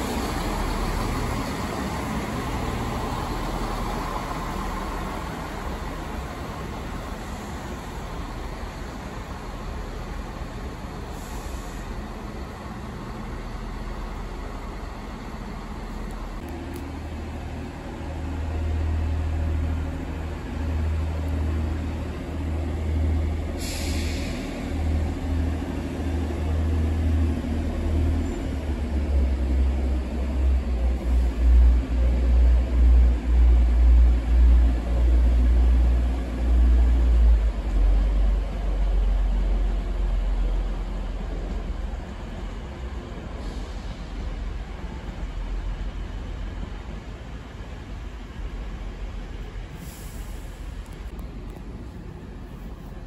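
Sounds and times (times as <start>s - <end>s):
train rumble: 0.0s - 53.0s
air hiss: 11.0s - 12.1s, 23.5s - 24.8s, 43.3s - 44.4s, 49.7s - 51.1s.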